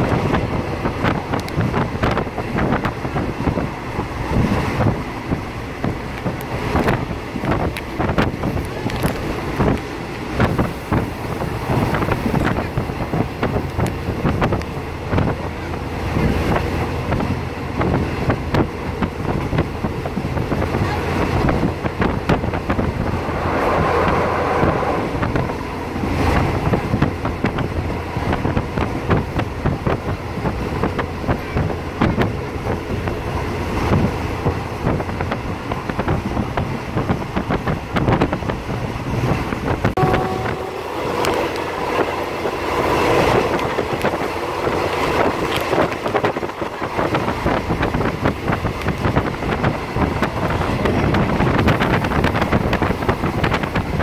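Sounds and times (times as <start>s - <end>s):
train wheels rumbling and clattering: 0.0s - 54.0s
wind buffeting microphone: 0.0s - 54.0s.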